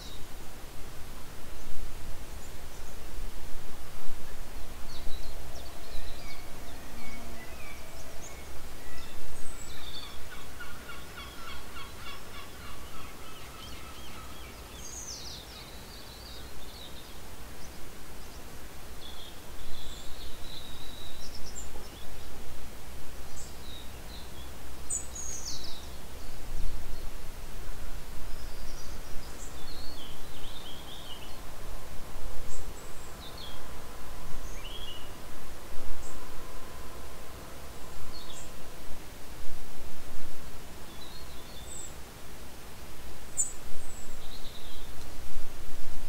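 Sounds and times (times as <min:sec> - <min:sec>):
wild birds calling: 0:05.2 - 0:15.8.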